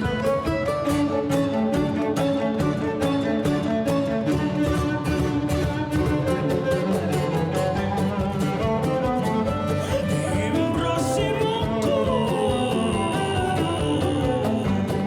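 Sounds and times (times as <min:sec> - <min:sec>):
bowed cello: 0:00.0 - 0:15.0
guitar and mandolin: 0:00.0 - 0:15.0.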